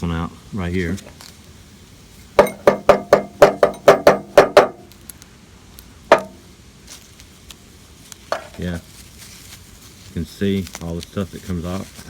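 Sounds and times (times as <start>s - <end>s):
metal part knocking on hard surface: 2.4s - 4.9s, 6.1s - 6.4s.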